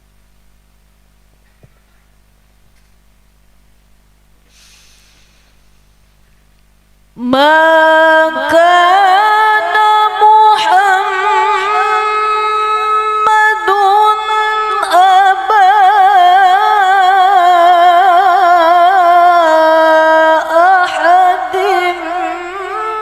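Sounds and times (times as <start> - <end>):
woman chanting melodically: 7.2 - 23.0.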